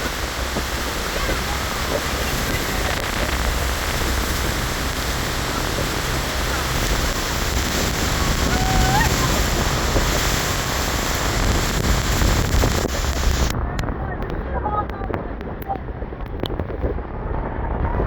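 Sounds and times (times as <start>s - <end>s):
waterfall roaring: 0.0s - 13.6s
wind buffeting microphone: 0.0s - 18.0s.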